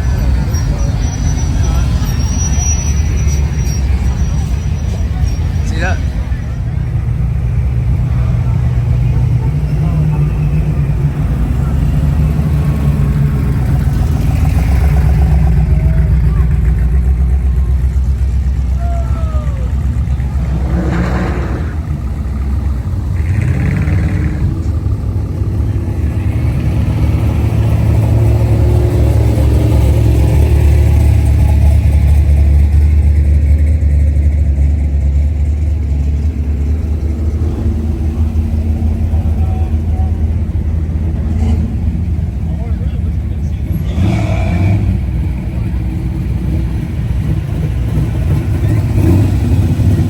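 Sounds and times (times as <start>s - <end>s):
car engine rumbling: 0.0s - 50.0s.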